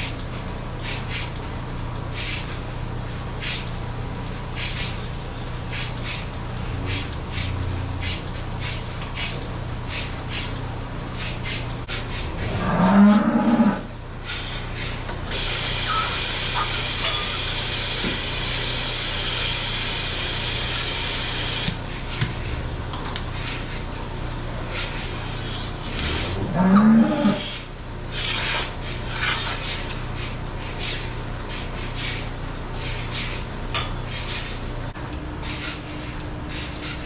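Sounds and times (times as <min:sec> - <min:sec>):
steady machine hum: 0:10.6 - 0:29.1
cow mooing: 0:12.2 - 0:13.9, 0:25.9 - 0:27.6.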